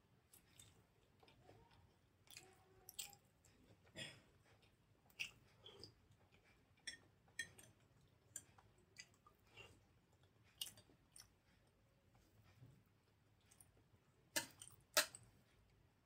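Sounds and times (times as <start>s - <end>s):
wet chewing and lip-smacking: 0.3s - 3.8s, 4.5s - 11.8s.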